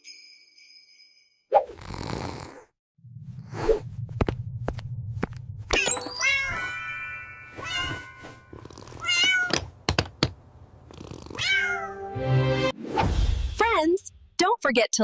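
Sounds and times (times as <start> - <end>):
cartoon cat meowing: 11.4 - 12.0.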